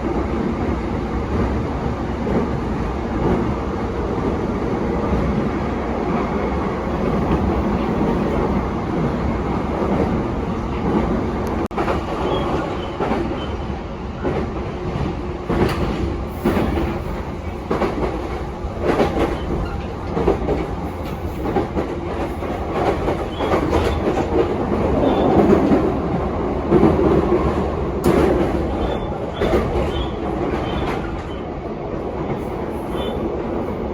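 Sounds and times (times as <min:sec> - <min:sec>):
train wheels rumbling on rail: 0:00.0 - 0:33.9
rail-joint clicks: 0:09.8 - 0:25.9, 0:26.7 - 0:33.6.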